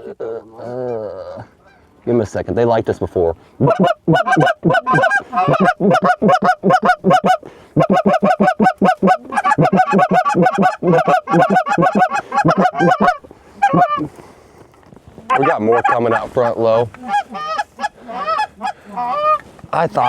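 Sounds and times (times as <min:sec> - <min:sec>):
goose call clucks: 0:03.6 - 0:14.1, 0:15.3 - 0:20.0.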